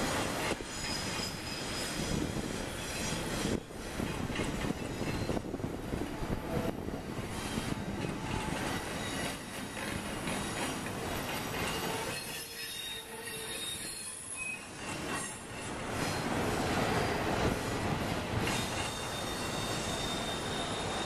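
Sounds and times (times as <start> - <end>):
steel wheels rumbling on rail: 0.0 - 21.0
high wheel squeal: 0.4 - 3.6, 7.3 - 16.3, 18.4 - 21.0.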